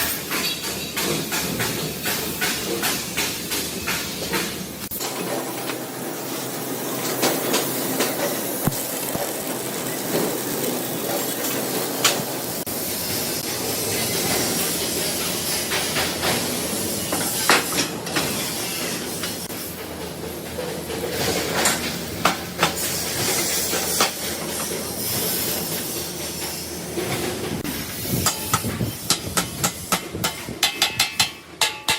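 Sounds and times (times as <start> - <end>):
steady workshop hiss: 0.0 - 31.9
sharp metallic knocks: 28.2 - 31.9.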